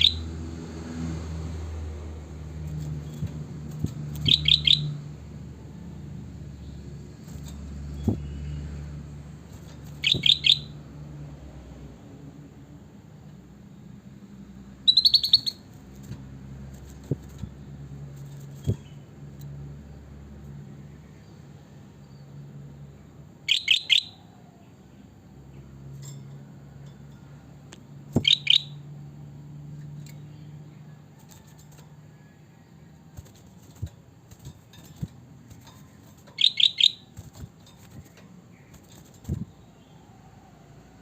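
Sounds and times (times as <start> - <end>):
bulbul whistling: 4.1 - 5.0, 9.9 - 10.8, 14.8 - 15.7, 23.5 - 24.3, 28.2 - 28.8, 36.3 - 38.0.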